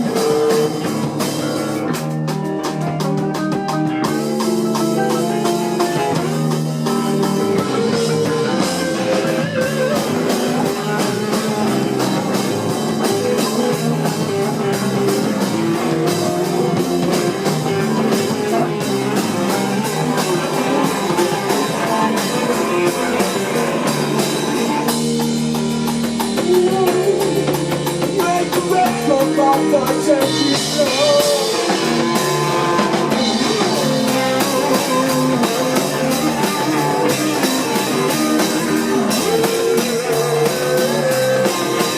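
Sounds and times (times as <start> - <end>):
live rock band playing: 0.0 - 41.9
person singing: 7.0 - 11.8, 26.4 - 41.9.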